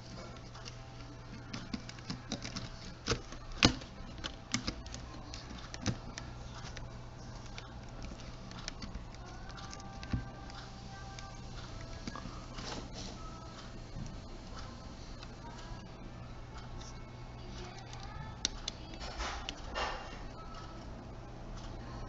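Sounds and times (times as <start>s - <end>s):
steady low hum: 0.0s - 22.0s
plastic parts clicking: 0.4s - 12.3s.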